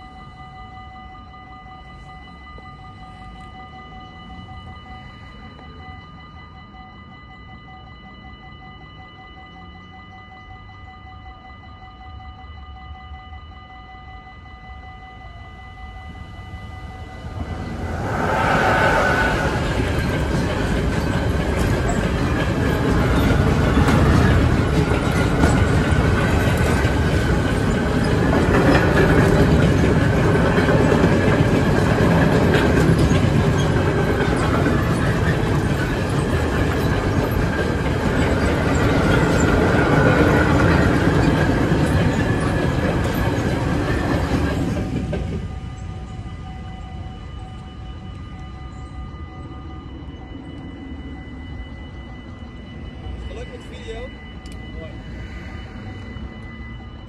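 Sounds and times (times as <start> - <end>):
freight train rumbling past: 14.9 - 57.0
wavering wheel squeal: 16.0 - 57.0
wheels clicking over rail joints: 19.7 - 45.9.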